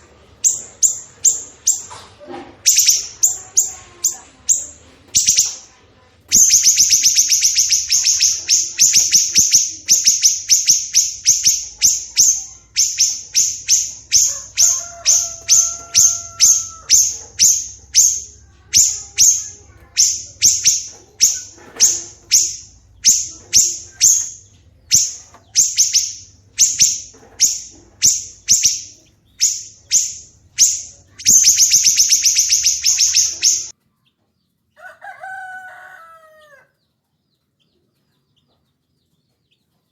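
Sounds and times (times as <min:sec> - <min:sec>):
bird whistle: 0:02.7 - 0:03.7, 0:06.3 - 0:33.7
songbird rasping call: 0:06.3 - 0:33.7.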